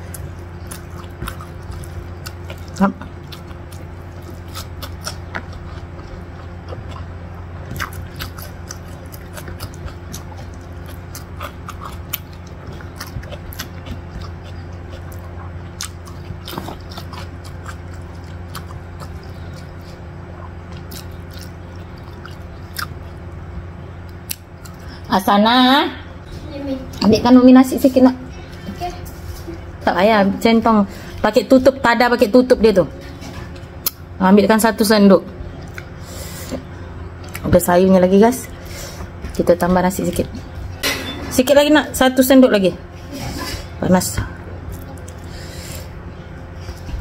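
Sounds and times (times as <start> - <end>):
close chewing of food: 0.0 - 25.0, 35.4 - 37.6, 43.7 - 47.0
steady low hum: 0.0 - 47.0.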